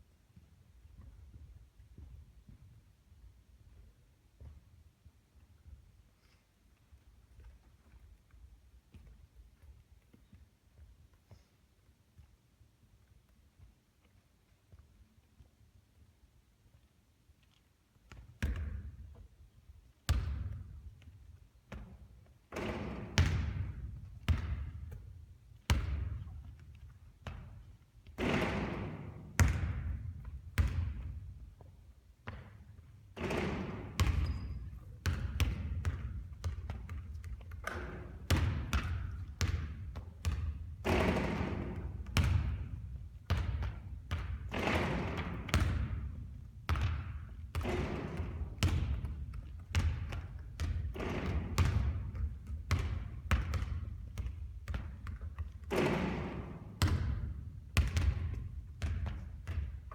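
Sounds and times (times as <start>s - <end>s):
basketball bouncing on court: 18.1s - 19.4s, 20.0s - 59.9s.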